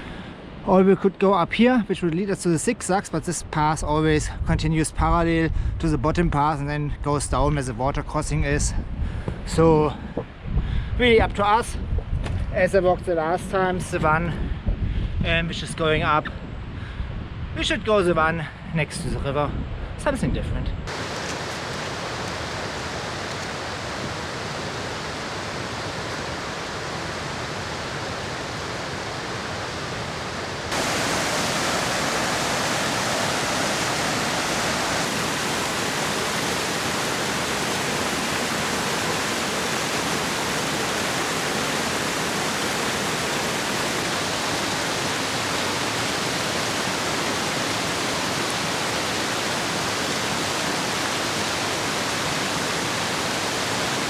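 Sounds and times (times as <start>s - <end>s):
river rushing: 20.9s - 54.0s.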